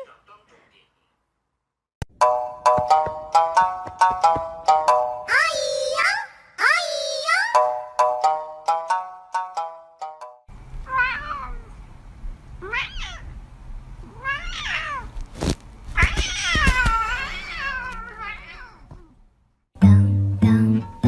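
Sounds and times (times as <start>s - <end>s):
cat meowing: 10.8s - 11.7s, 12.6s - 13.4s, 14.0s - 15.2s, 15.9s - 19.2s.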